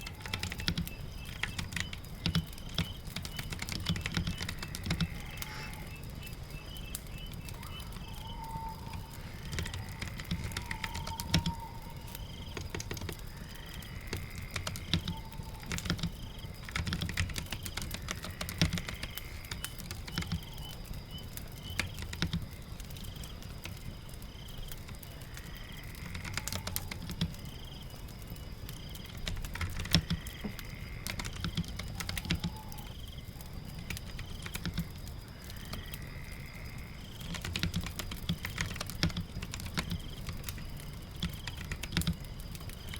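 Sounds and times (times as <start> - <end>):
computer keyboard typing: 0.0 - 5.9, 8.9 - 13.3, 14.1 - 20.7, 21.6 - 22.4, 26.0 - 27.4, 29.2 - 32.9, 33.9 - 34.9, 37.2 - 42.9
fire crackling: 0.0 - 42.9
rain: 0.0 - 42.9.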